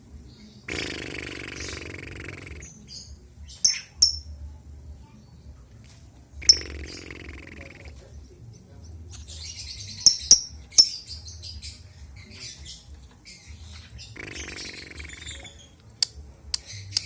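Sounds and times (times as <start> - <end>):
lovebird chirping: 0.6 - 4.4, 6.4 - 7.5, 9.1 - 17.0.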